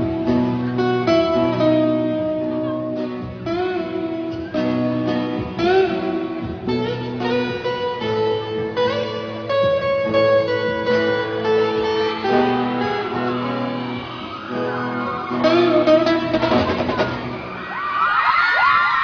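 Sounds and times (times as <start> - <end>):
guitar-led music: 0.0 - 18.2
crowd screaming and whooping: 3.8 - 6.4, 11.2 - 19.0.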